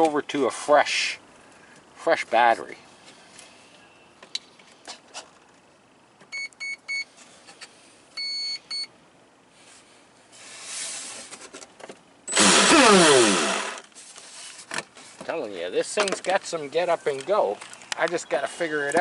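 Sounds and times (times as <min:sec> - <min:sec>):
electric motor and propeller revving: 0:12.3 - 0:13.9.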